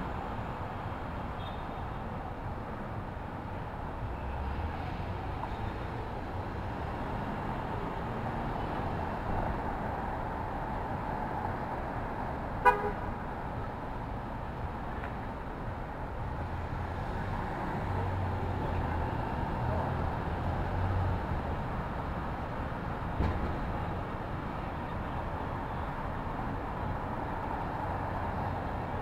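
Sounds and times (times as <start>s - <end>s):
city street traffic: 0.0s - 29.0s
car horn toot: 12.6s - 13.1s.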